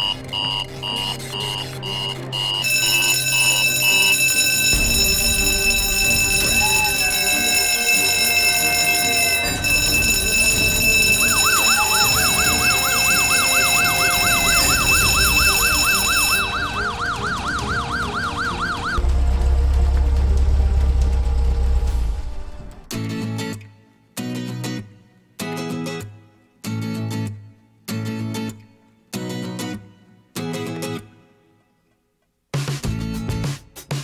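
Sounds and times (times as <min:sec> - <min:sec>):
electric alarm bell ringing: 0:00.0 - 0:19.0
wailing siren: 0:00.8 - 0:22.9
low rumble: 0:19.0 - 0:22.9.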